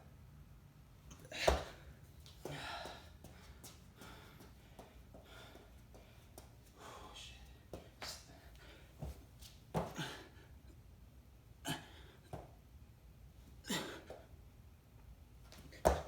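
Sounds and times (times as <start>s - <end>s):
person breathing hard: 1.2s - 9.0s.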